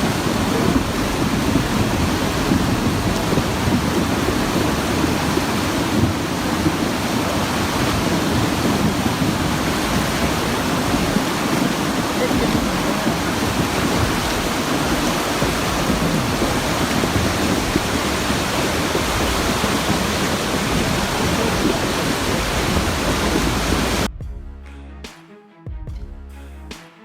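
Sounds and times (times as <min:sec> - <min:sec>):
rushing floodwater roar: 0:00.0 - 0:24.1
music: 0:24.1 - 0:27.0.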